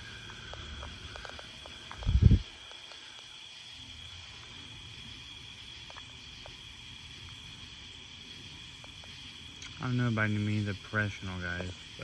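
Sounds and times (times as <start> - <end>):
faint ticks: 0.0 - 3.4, 5.8 - 6.6
crickets trilling: 0.0 - 12.0.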